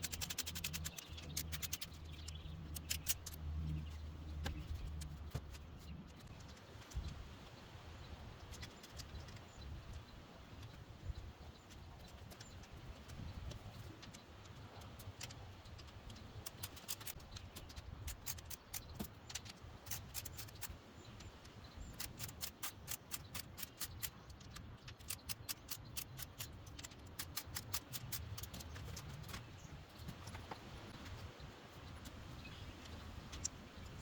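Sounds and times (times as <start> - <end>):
ratchet tool clicking rapidly: 0.0 - 3.4, 21.9 - 28.6.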